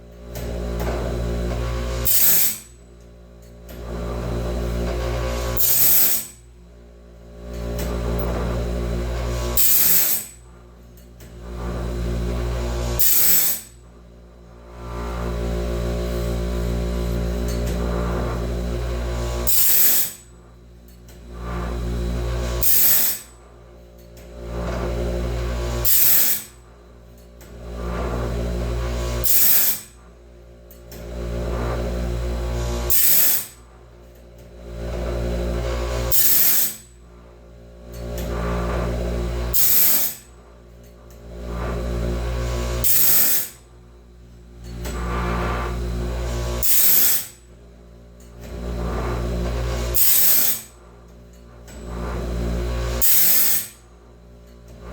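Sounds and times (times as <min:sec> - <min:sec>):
grinder motor humming: 0:00.0 - 0:54.9
sharp high-pitched grinding bursts: 0:02.0 - 0:02.7, 0:05.4 - 0:06.4, 0:09.6 - 0:10.4, 0:12.9 - 0:13.8, 0:19.4 - 0:20.3, 0:22.6 - 0:23.3, 0:25.8 - 0:26.6, 0:29.2 - 0:30.0, 0:32.8 - 0:33.6, 0:36.1 - 0:36.9, 0:39.5 - 0:40.3, 0:42.8 - 0:43.6, 0:46.6 - 0:47.4, 0:49.9 - 0:50.8, 0:53.0 - 0:53.8.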